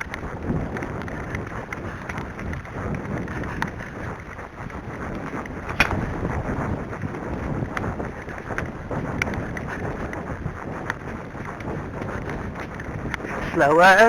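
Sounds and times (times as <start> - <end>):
wind buffeting microphone: 0.0 - 14.0
sharp clicks: 5.7 - 6.3.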